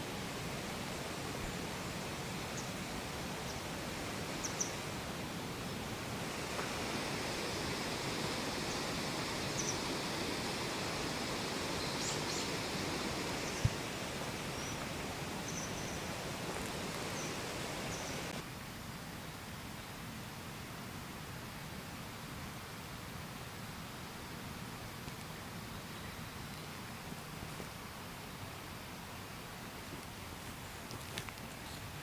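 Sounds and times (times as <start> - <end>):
flowing water rushing: 0.0 - 18.4.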